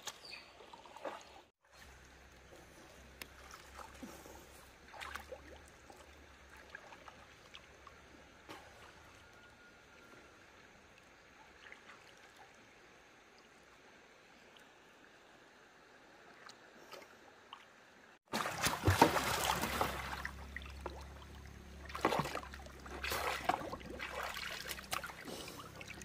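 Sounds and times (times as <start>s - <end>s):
flowing water: 0.0s - 26.0s
small taps and splashes: 18.3s - 21.2s, 21.8s - 26.0s.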